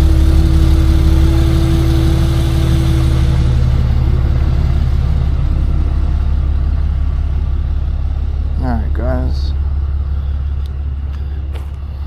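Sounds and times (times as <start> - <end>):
steady whine: 0.0 - 12.0
truck engine idling: 0.0 - 12.0.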